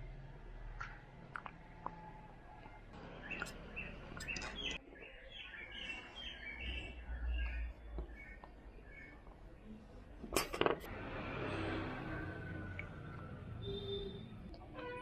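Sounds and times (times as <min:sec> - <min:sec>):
small birds chirping: 0:00.6 - 0:10.0.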